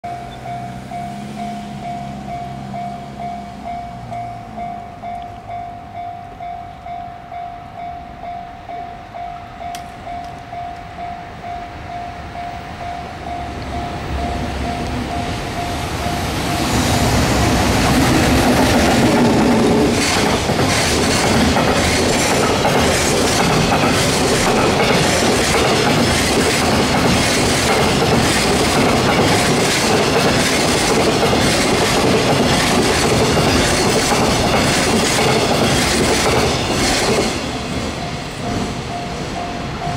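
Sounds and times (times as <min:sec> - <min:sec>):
freight train rumble: 0:00.0 - 0:39.9
wheels clacking over rail joints: 0:13.6 - 0:38.9.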